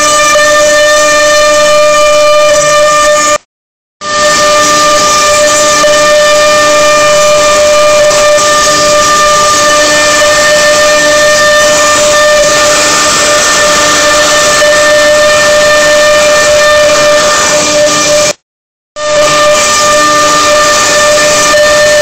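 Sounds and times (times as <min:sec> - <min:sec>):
cnc router whining: 0:04.0 - 0:18.4, 0:19.0 - 0:22.0.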